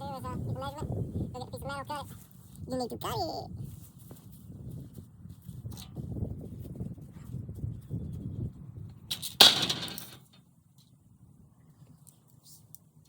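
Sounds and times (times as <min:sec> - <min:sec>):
loud crash: 0:09.4 - 0:10.2.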